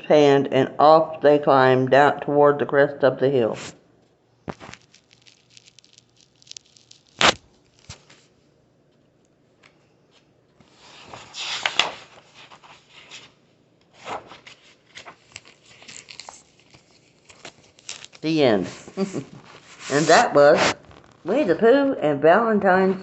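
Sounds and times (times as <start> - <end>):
paper pages rustling: 4.5 - 8.3, 10.6 - 21.4.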